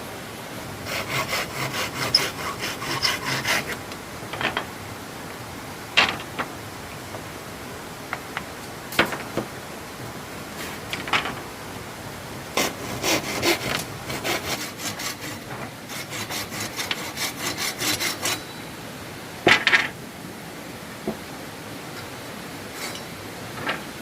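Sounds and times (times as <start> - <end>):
hand saw cutting wood: 0.8 - 3.8, 12.6 - 18.5
wood knocking on wood: 8.4 - 9.5.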